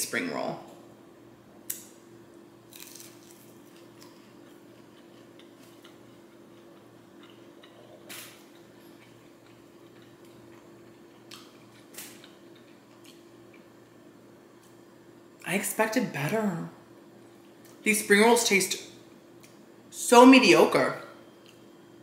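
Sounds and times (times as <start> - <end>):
chewing crunchy food: 2.7 - 13.8, 21.4 - 21.8.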